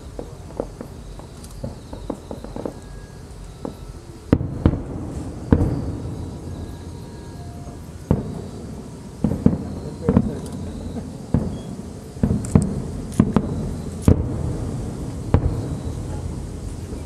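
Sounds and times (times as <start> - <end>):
fireworks bursting: 0.0 - 17.0
steady low rumble: 0.0 - 17.0.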